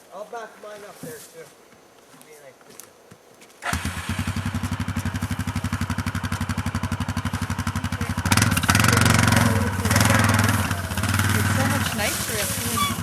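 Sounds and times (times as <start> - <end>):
quad engine idling and revving: 3.6 - 13.0.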